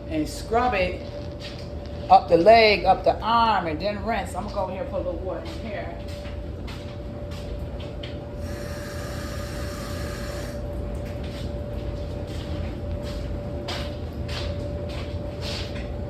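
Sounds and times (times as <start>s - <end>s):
steady hum and low rumble: 0.0s - 16.0s
water running from a tap: 8.4s - 10.6s.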